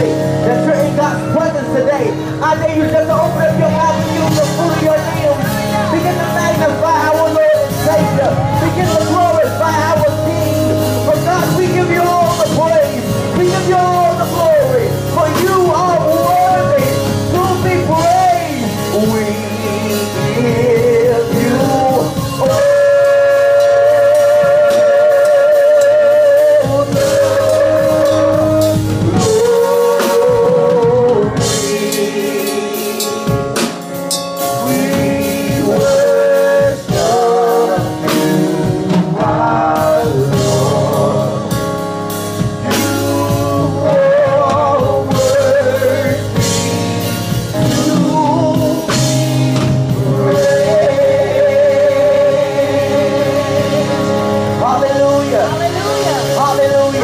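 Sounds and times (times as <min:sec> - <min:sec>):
drums: 0:00.0 - 0:57.0
person singing with vibrato: 0:03.4 - 0:33.6, 0:34.4 - 0:57.0.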